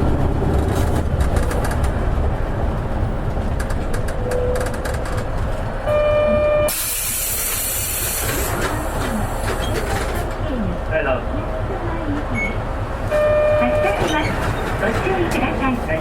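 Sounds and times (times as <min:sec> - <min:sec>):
bus engine running: 0:00.0 - 0:16.0
compressed air hiss: 0:06.7 - 0:08.6.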